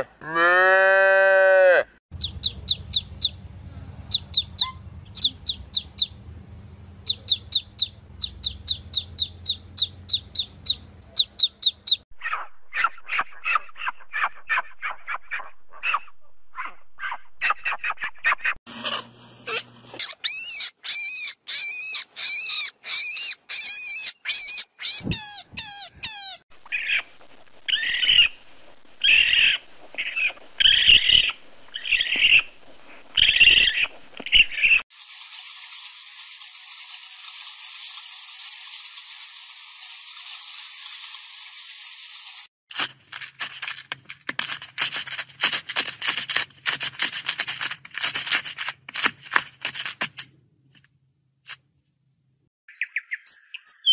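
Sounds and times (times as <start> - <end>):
low hum: 2.2 - 11.2
squeaky animal calls: 4.2 - 5.6, 12.2 - 27.0.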